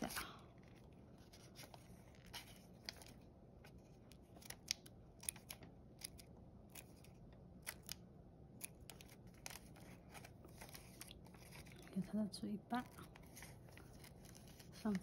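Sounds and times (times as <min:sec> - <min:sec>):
scissors snipping paper: 0:04.2 - 0:08.0.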